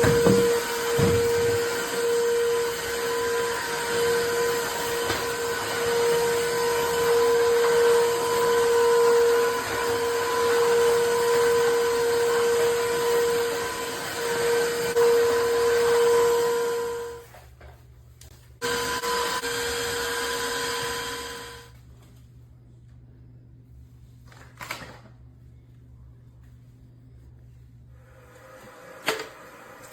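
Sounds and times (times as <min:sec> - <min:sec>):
floor cleaner whine and suction: 0:00.0 - 0:17.6, 0:18.6 - 0:21.8, 0:27.9 - 0:29.9.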